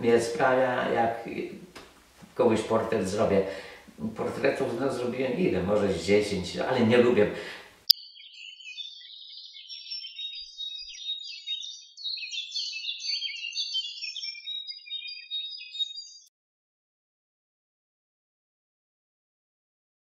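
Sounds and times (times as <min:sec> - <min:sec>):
birds chirping: 0:07.8 - 0:16.3.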